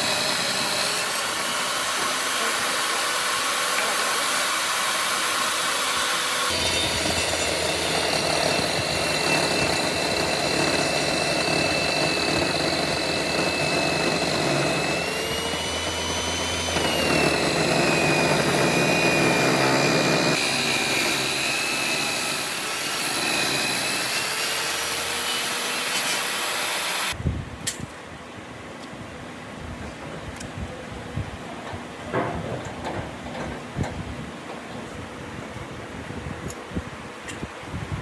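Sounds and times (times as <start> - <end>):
power tool whining: 0.0 - 27.2.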